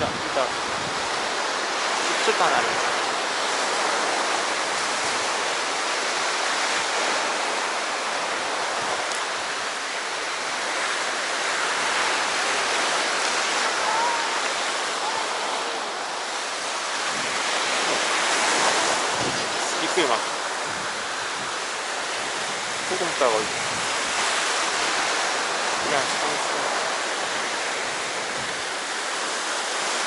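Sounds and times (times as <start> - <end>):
sea surf on the shore: 0.0 - 30.0.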